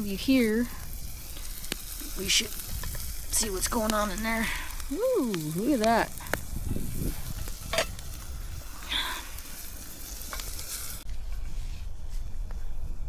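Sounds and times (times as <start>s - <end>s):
onion sizzling in a pan: 0.0s - 11.1s.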